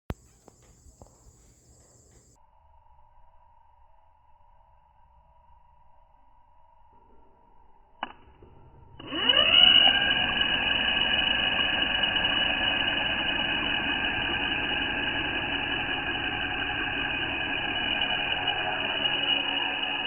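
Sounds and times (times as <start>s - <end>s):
drone motor whine: 8.0s - 20.0s.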